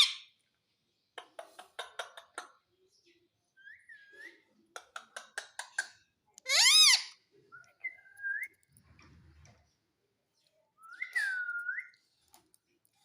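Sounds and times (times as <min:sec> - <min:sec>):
parrot chattering: 0:05.1 - 0:07.2.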